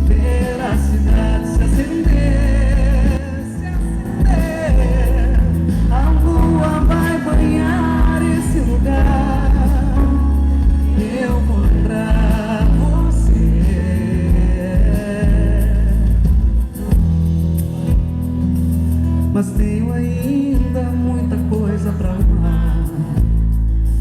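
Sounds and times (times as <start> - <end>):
person singing: 0.0 - 16.3
live band music: 0.0 - 24.0.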